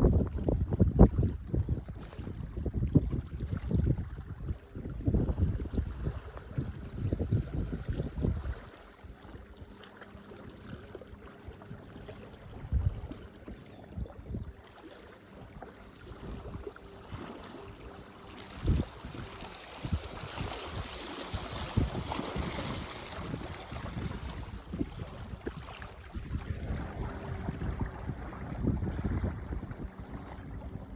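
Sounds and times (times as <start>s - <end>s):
wind buffeting microphone: 0.0s - 9.6s, 12.4s - 14.6s, 18.2s - 30.9s.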